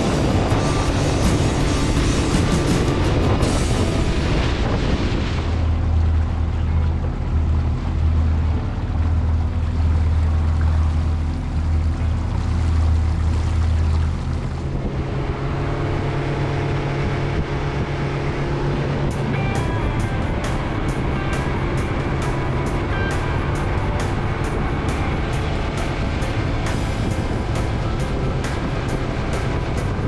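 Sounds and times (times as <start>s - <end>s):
wind noise: 0.0s - 6.4s, 14.5s - 30.0s
outboard engine running: 0.0s - 30.0s
water noise: 0.0s - 30.0s.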